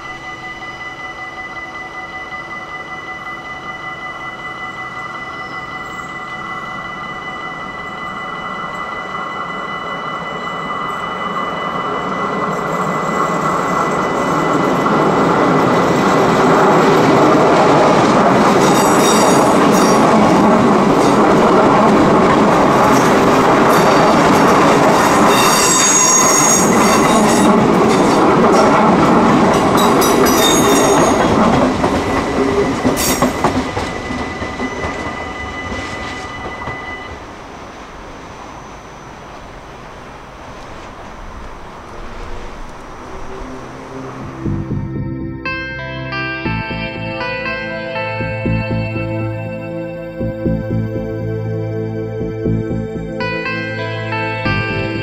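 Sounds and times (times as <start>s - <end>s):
level-crossing warning bell: 0.0s - 40.2s, 41.3s - 55.0s
electric train passing: 0.0s - 55.0s
high-pitched wheel squeal: 22.7s - 27.6s.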